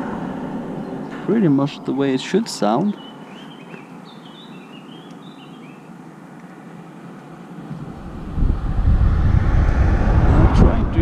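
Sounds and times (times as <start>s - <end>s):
outdoor background hiss: 0.0s - 8.6s
bird chirping: 0.8s - 6.0s
vehicle approaching rumble: 7.6s - 11.0s.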